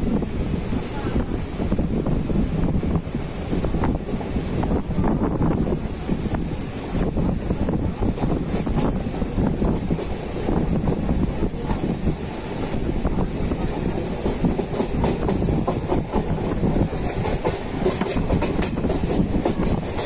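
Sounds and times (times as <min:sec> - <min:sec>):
train wheels rumbling on rails: 0:00.0 - 0:20.0
clicking over rail joints: 0:12.7 - 0:20.0.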